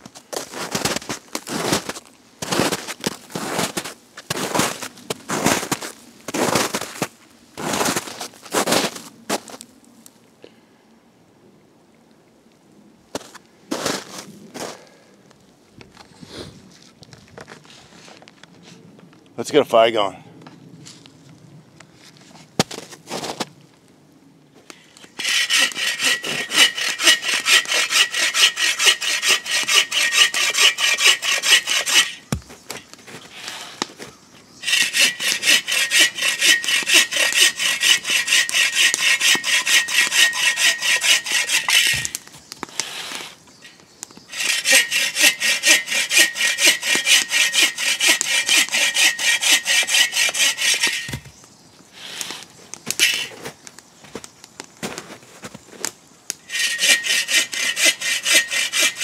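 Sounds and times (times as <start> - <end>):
bow saw cutting wood: 25.0 - 33.9, 34.6 - 43.4, 44.3 - 51.3, 53.0 - 53.4, 56.5 - 59.0.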